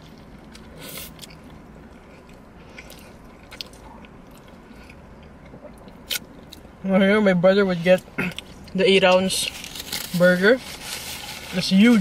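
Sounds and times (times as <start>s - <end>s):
biting and chewing burger: 0.0s - 6.7s
steady low hum: 0.0s - 12.0s.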